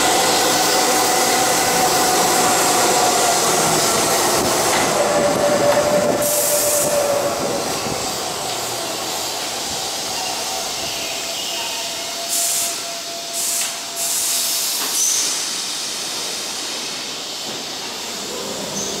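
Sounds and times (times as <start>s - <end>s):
electric train braking to a stop: 0.0s - 19.0s
compressed air hiss: 12.3s - 18.9s.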